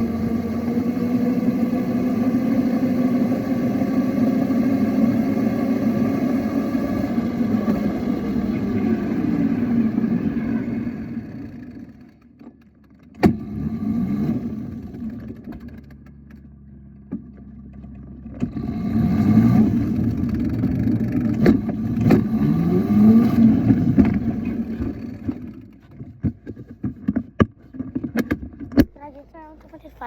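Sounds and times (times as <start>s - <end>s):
vehicle engine revving: 0.0s - 12.2s, 13.2s - 16.0s, 18.2s - 25.8s.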